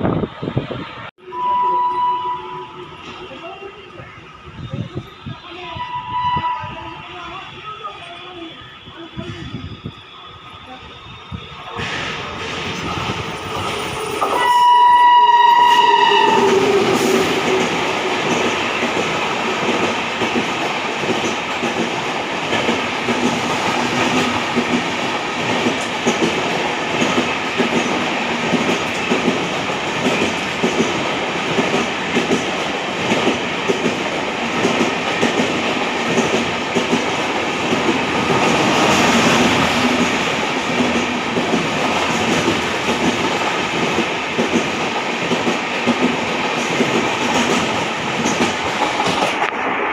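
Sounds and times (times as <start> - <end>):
train horn blast: 1.2 - 2.9, 14.3 - 17.8.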